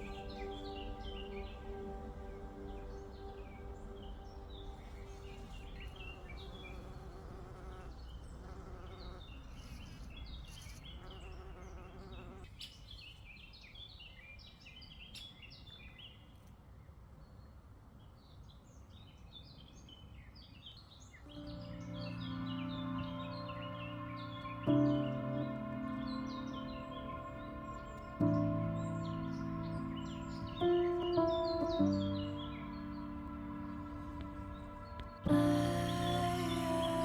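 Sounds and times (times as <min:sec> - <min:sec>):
low wind rumble: 0:00.0 - 0:08.5, 0:21.0 - 0:37.0
small birds chirping and twittering: 0:00.0 - 0:37.0
insect buzzing: 0:04.8 - 0:12.5.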